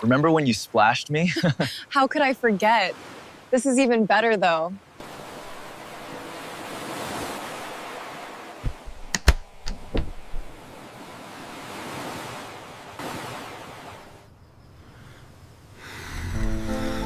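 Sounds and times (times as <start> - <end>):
ocean surf washing in: 4.9 - 14.2.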